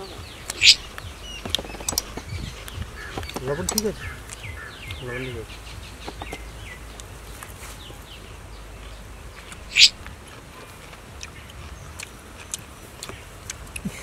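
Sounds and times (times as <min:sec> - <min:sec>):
faint clicks: 0:00.0 - 0:07.9
loud bird call: 0:00.0 - 0:14.0
small birds chirping: 0:00.0 - 0:14.0.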